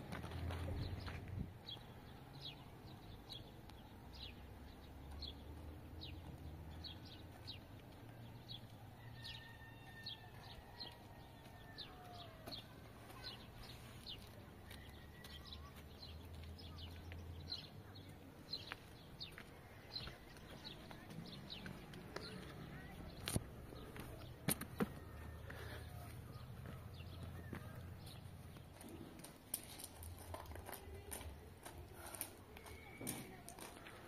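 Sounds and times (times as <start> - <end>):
small birds chirping: 0.3 - 34.0.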